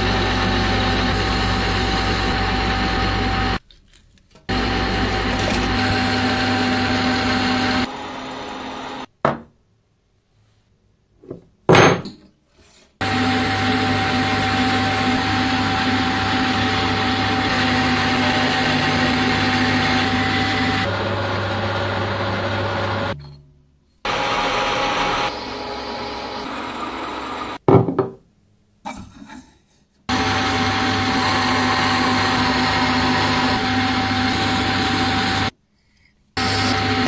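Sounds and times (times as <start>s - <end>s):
electric power tool motor: 0.0s - 3.6s, 4.5s - 9.1s, 13.0s - 21.0s, 24.1s - 27.6s, 30.1s - 35.5s, 36.4s - 37.0s.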